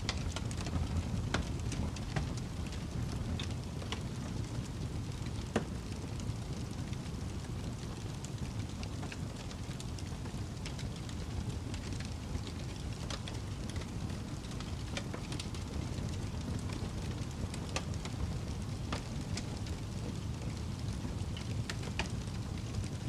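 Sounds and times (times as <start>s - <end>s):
burning logs crackling and popping: 0.0s - 23.0s
fire flames rumbling: 0.0s - 23.0s.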